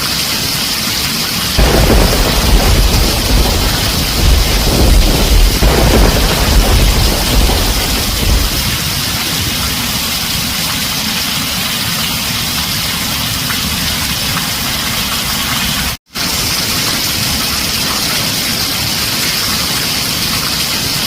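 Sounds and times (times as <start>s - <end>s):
heavy rain on a tin roof: 0.0s - 21.0s
low thunder rumble: 1.6s - 10.6s.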